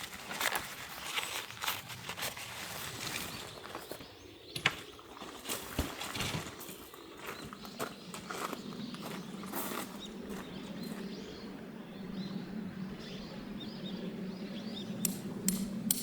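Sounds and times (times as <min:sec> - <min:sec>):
rustling: 0:00.0 - 0:07.4.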